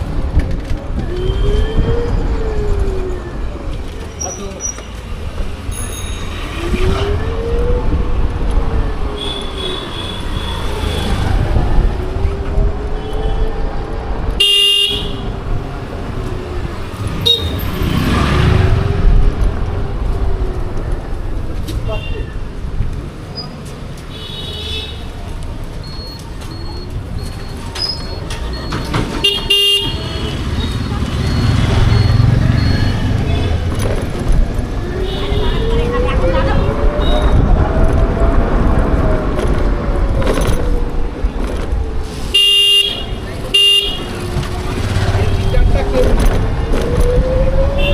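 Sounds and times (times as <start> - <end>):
wind buffeting on microphone: 0.0 - 3.9, 6.6 - 9.6, 10.9 - 14.3, 33.1 - 42.1
road rumble: 0.0 - 47.9.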